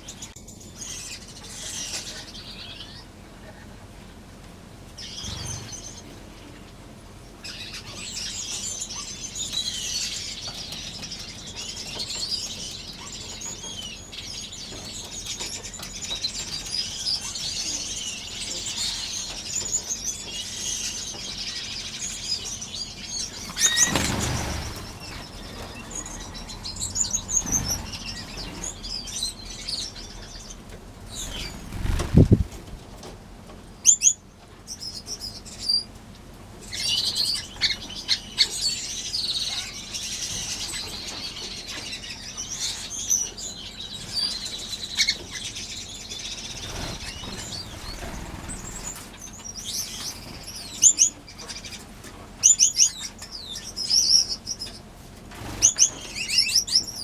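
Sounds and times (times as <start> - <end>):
finches chirping: 5.0 - 6.2, 7.3 - 32.8, 36.7 - 51.8, 55.4 - 57.0
wings fluttering: 5.0 - 6.2, 22.2 - 33.6, 44.0 - 51.1, 54.7 - 57.0.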